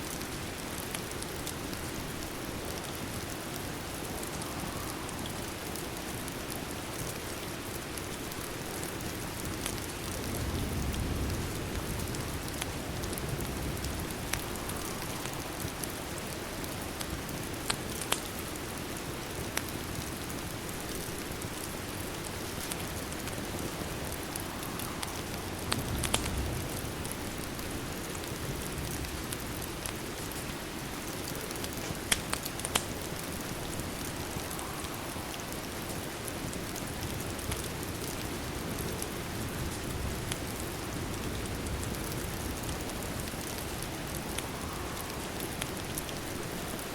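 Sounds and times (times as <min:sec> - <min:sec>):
rain hissing against window: 0:00.0 - 0:46.9
fireplace crackling and popping: 0:00.1 - 0:46.9.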